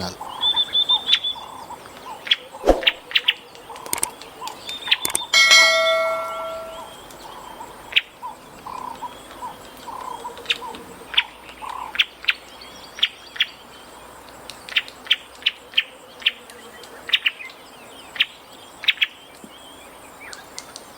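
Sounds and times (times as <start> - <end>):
bird chirping: 0.0 - 13.9
soft bird warbling: 2.6 - 3.0.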